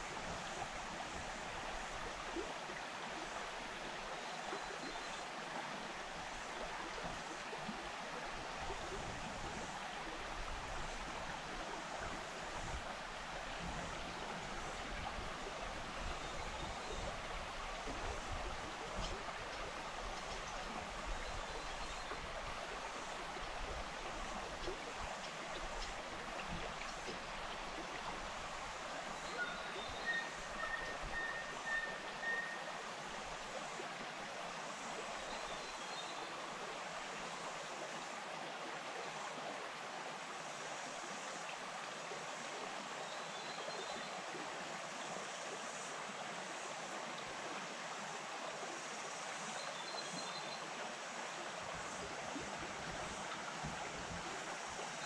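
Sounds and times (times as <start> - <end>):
stream rushing over its bed: 0.0 - 55.0
faint high chirp: 29.2 - 32.8.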